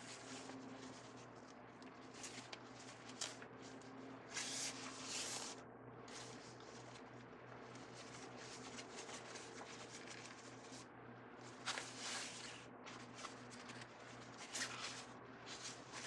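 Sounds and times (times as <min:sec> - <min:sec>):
faint steady hum: 0:00.0 - 0:16.0
ribbon rustling and crinkling: 0:00.0 - 0:16.0.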